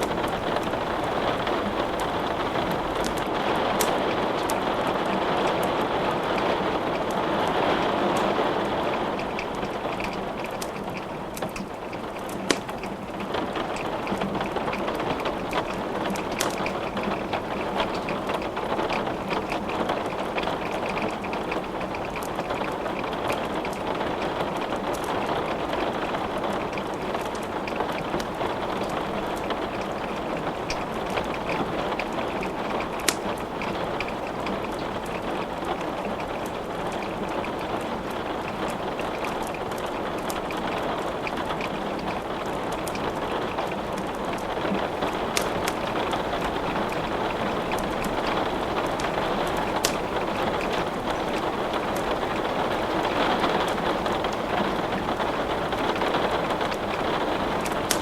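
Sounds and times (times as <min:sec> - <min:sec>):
wood fire crackling: 0:00.0 - 0:12.9, 0:13.6 - 0:58.0
steady rain falling: 0:00.0 - 0:58.0
fire snapping loudly: 0:44.9 - 0:53.8.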